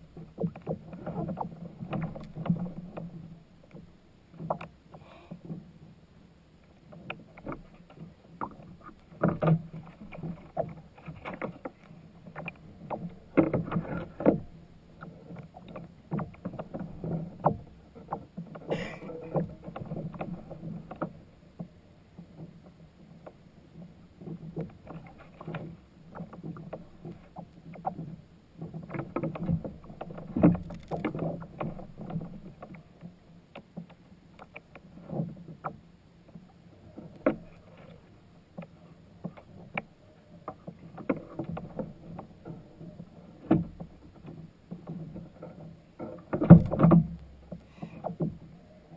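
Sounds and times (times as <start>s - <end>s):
water splashing against kayak hull: 0.0s - 6.0s, 6.6s - 48.9s
small knocks: 23.2s - 32.8s, 43.4s - 48.4s.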